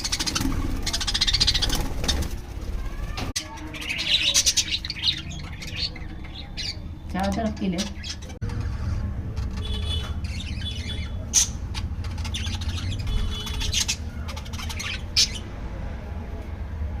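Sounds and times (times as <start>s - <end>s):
budgerigars squawking and chattering: 0.0s - 2.4s, 3.4s - 8.7s, 9.6s - 15.4s.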